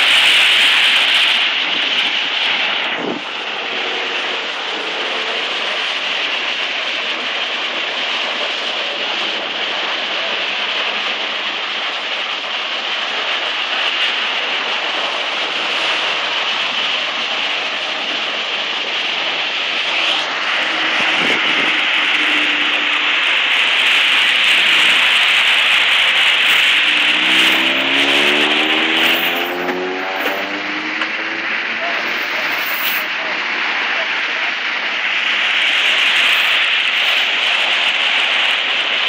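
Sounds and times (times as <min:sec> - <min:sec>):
tyres hissing through water: 0:00.0 - 0:39.0
vehicle engine rising in pitch: 0:20.4 - 0:23.4, 0:26.4 - 0:32.2.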